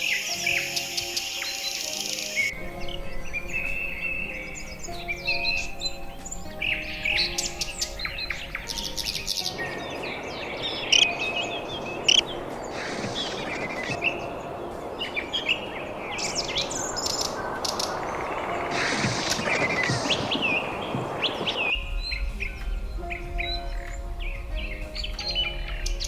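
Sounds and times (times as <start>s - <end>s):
birds chirping: 0.0s - 26.0s
soft sustained music tones: 0.0s - 26.0s
steady hiss: 0.0s - 26.0s.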